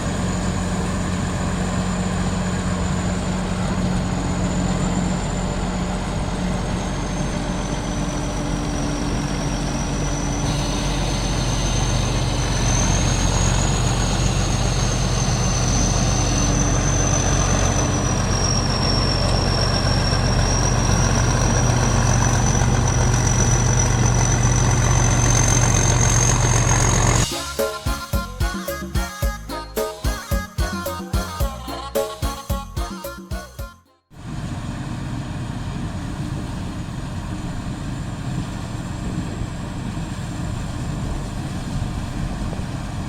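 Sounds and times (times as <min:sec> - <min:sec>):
combine harvester engine drone: 0:00.0 - 0:33.0, 0:34.2 - 0:43.0
high whine: 0:00.0 - 0:33.9.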